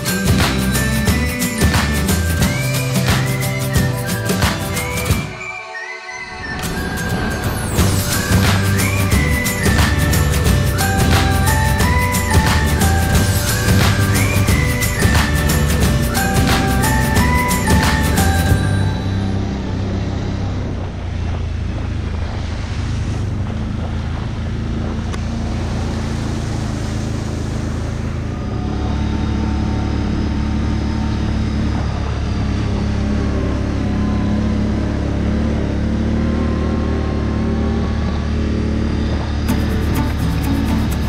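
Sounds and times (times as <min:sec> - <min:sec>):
atv engine running: 0:00.0 - 0:05.2, 0:06.9 - 0:41.0.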